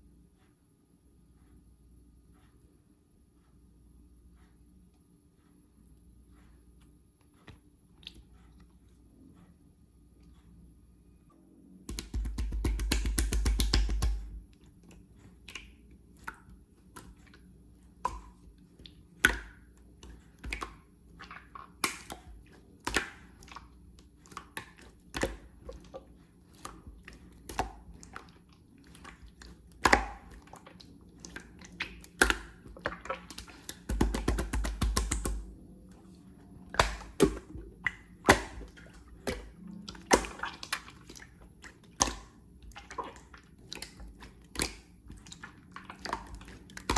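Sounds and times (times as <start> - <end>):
slime squishing with sticky clicks: 11.8 - 46.9
rapid slime crackling: 11.9 - 17.2, 17.8 - 46.9.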